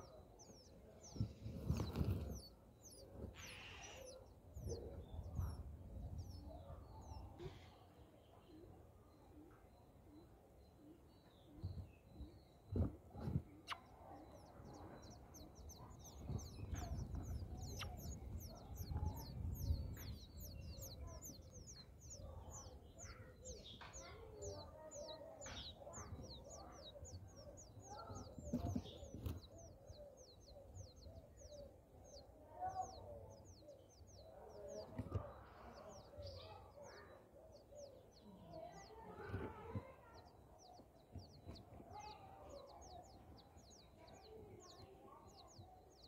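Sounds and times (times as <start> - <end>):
small birds calling: 0.0 - 46.0.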